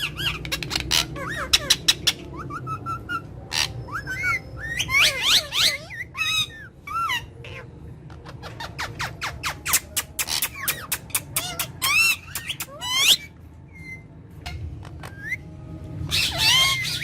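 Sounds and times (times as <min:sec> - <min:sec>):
parrots clicking and chirping: 0:00.0 - 0:02.3, 0:09.5 - 0:13.2.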